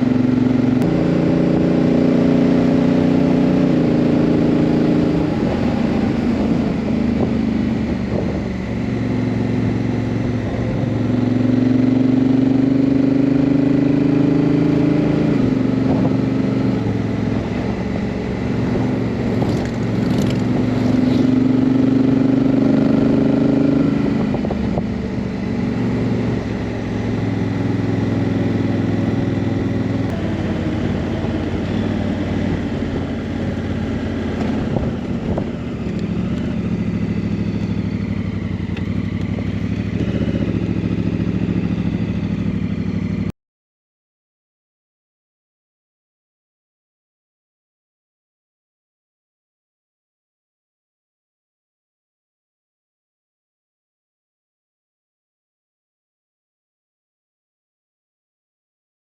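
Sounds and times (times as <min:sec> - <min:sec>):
motorcycle engine shifting gears: 0:00.0 - 0:43.3.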